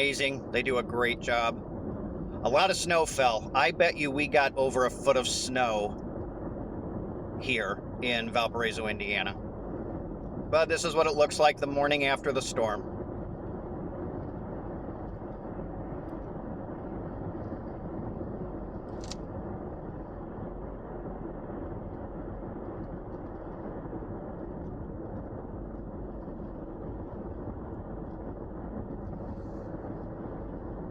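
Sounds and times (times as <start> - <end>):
faint click: 18.9 - 19.2.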